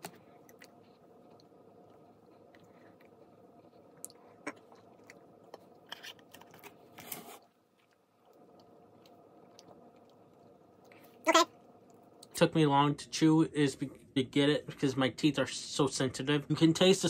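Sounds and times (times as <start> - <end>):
person chewing food: 0.0 - 7.0, 7.6 - 11.2
steady low hum: 0.0 - 17.0.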